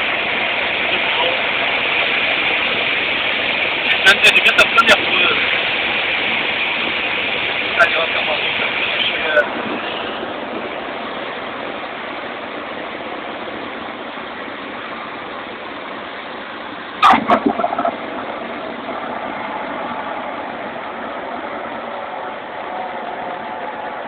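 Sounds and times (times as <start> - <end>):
aircraft engine drone in cabin: 0.0 - 24.0
loud burst of crackles: 17.0 - 18.5.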